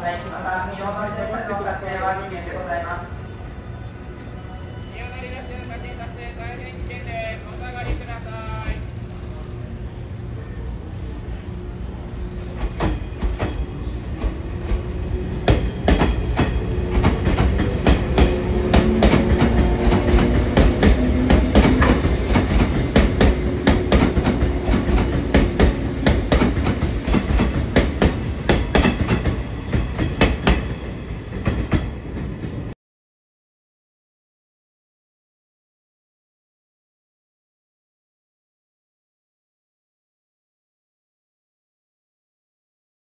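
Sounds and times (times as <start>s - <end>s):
low train rumble: 0.0s - 32.8s
train wheels clacking over rail joints: 12.6s - 13.6s, 15.4s - 32.0s.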